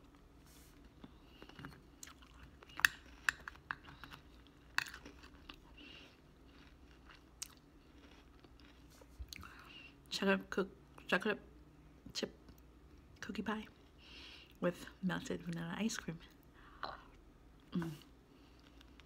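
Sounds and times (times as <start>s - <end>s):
wet chewing: 1.0s - 9.5s.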